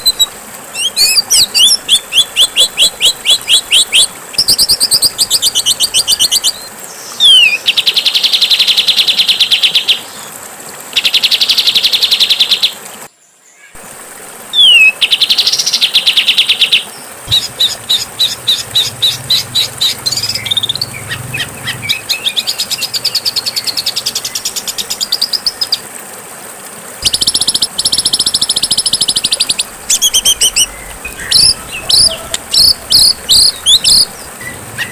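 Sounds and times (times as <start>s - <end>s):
songbird rapid trills: 0.0s - 9.8s, 14.6s - 25.8s, 27.0s - 34.9s
bird chirps: 16.6s - 25.8s, 27.0s - 34.9s.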